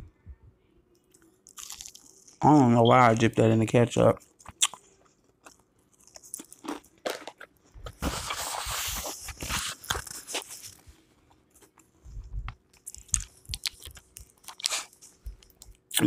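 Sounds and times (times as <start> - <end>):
chewing crispy fried fish: 1.1 - 3.3, 4.2 - 7.6, 12.5 - 16.0
paper napkin rustling: 7.8 - 11.0.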